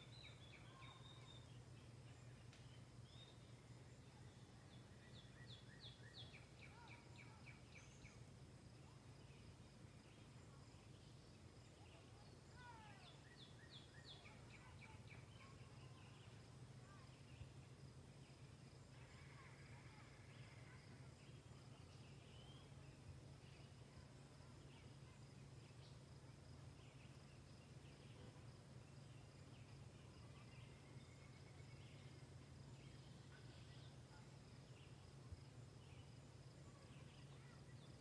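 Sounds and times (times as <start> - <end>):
low steady hum: 0.0 - 38.0
woodland bird song: 0.0 - 38.0.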